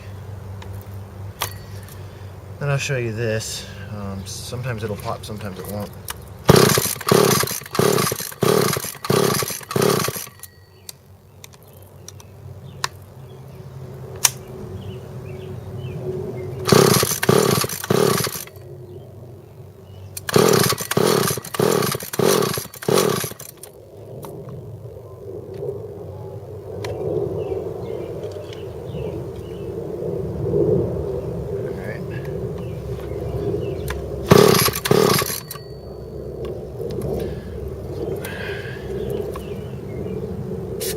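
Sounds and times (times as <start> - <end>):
chainsaw engine popping: 4.3 - 10.5, 16.6 - 18.6, 20.2 - 24.5, 33.7 - 35.7
chainsaw being pull-started: 5.6 - 10.5, 16.6 - 18.6, 20.2 - 23.7, 33.9 - 35.7.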